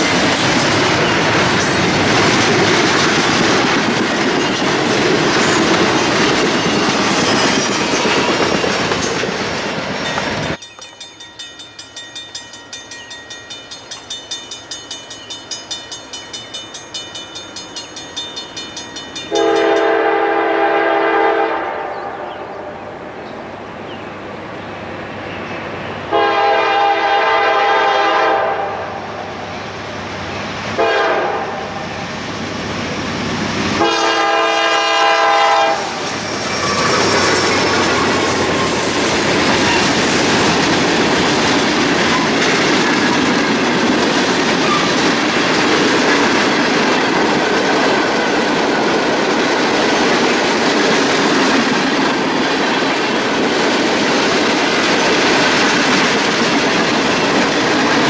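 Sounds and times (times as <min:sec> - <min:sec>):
clickety-clack over rail joints: 0:00.0 - 0:11.0, 0:35.8 - 0:58.0
train wheels rolling: 0:00.0 - 0:21.0, 0:31.8 - 0:58.0
locomotive air horn chord: 0:19.3 - 0:22.2, 0:26.1 - 0:29.3, 0:30.8 - 0:31.8, 0:33.8 - 0:36.0.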